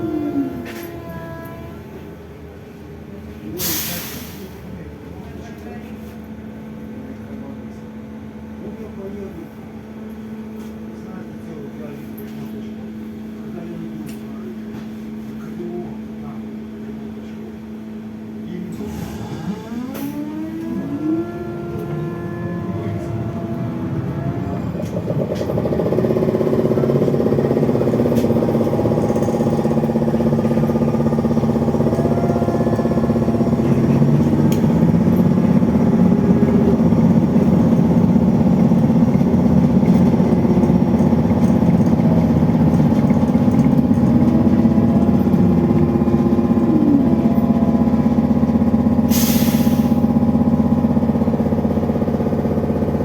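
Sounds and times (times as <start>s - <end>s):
electric traction drive whine: 19.3s - 53.0s
rolling noise: 20.9s - 48.7s.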